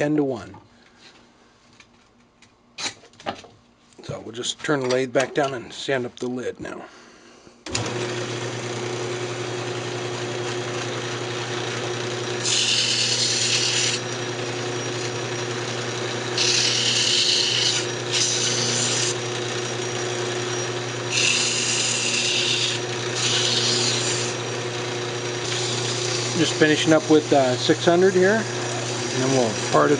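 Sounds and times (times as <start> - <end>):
wood lathe humming: 7.7 - 29.9.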